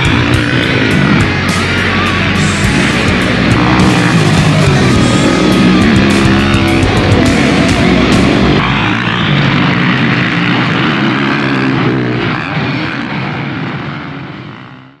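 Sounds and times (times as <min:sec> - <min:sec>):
motocross bike engine running: 0:00.0 - 0:15.0.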